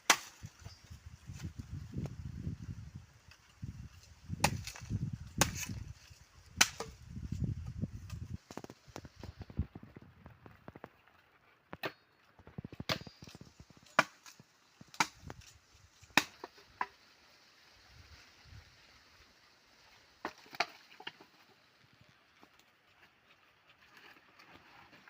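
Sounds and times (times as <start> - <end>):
axe chopping firewood: 0.0 - 0.8, 4.3 - 5.9, 6.5 - 7.0, 11.7 - 12.1, 12.7 - 17.0, 20.2 - 21.3.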